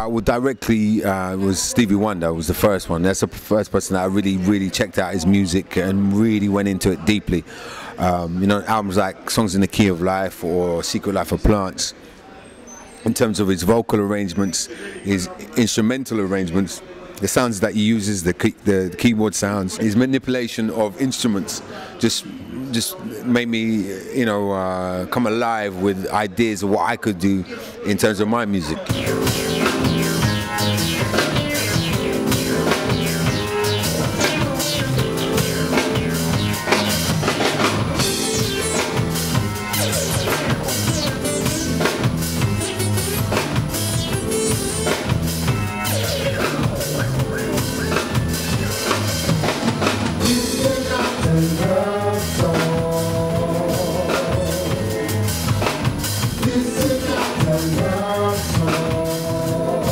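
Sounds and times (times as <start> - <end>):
bass line: 28.9 - 59.9
drum kit beat: 28.9 - 59.9.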